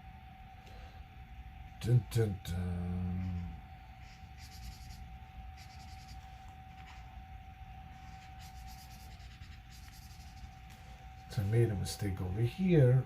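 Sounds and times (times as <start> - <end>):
faint high hum: 0.0 - 13.0
marker scribbling on paper: 4.0 - 7.0, 8.1 - 10.6.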